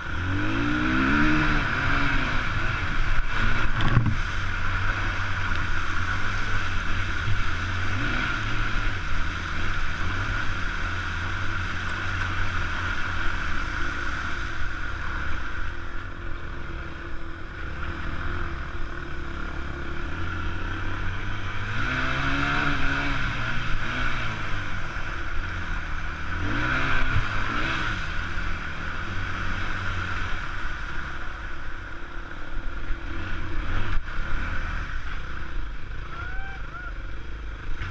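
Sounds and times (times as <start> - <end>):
dirt bike engine revving: 0.0 - 31.4
steady rushing noise: 0.0 - 37.9.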